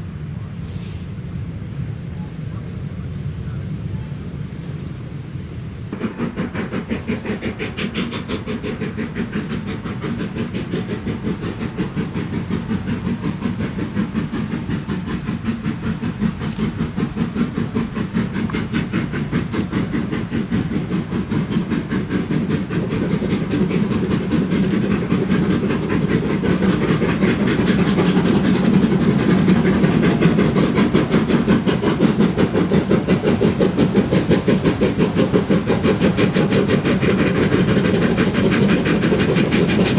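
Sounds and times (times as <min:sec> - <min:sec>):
steam locomotive exhaust beats: 0:00.0 - 0:39.9
steam hissing: 0:00.1 - 0:39.9.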